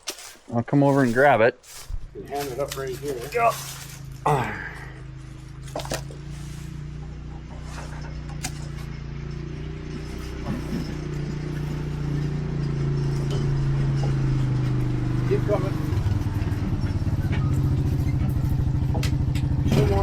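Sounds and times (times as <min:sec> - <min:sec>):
engine humming: 0:00.9 - 0:20.0
light clinks and knocks: 0:07.0 - 0:15.2.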